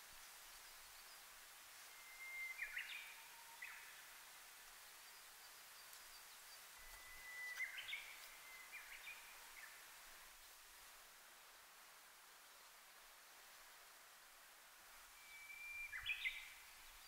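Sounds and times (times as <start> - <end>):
bush warbler singing: 5.0 - 9.8, 15.3 - 17.0.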